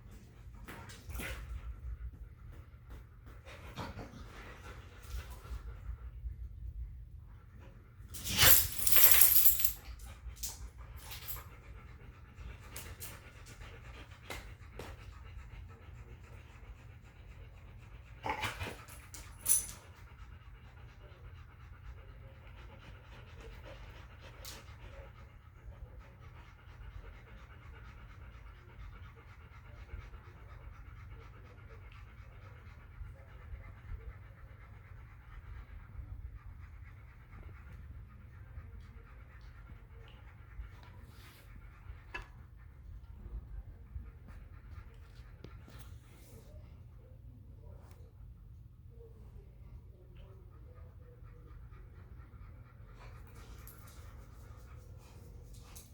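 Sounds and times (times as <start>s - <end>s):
dogs panting: 0.0s - 55.9s.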